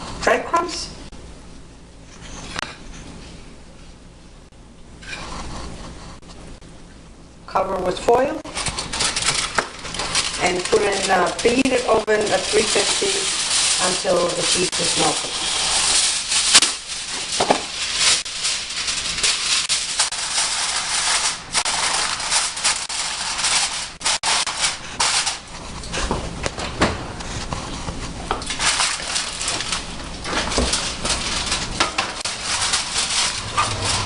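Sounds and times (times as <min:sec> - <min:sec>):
aluminium foil crinkling: 0:08.5 - 0:25.9, 0:28.3 - 0:34.0.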